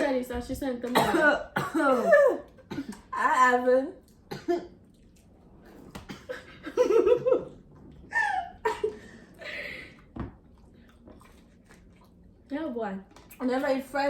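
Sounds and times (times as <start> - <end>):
young women laughing: 6.3 - 9.6.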